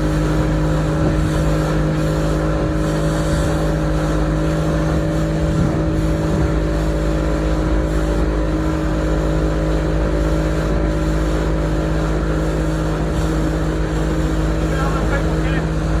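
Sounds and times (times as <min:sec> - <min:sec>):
motorboat engine running: 0:00.0 - 0:16.0
rush of wind and water: 0:00.0 - 0:16.0.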